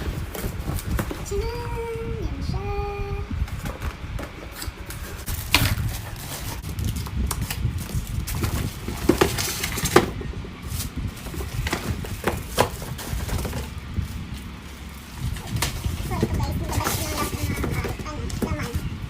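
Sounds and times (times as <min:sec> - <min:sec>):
packaging rustling: 0:03.5 - 0:18.0.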